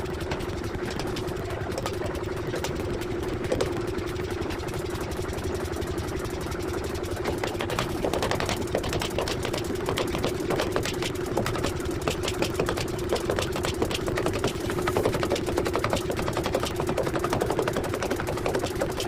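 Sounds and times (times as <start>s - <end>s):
metallic knocks and clatter: 0.2s - 3.9s.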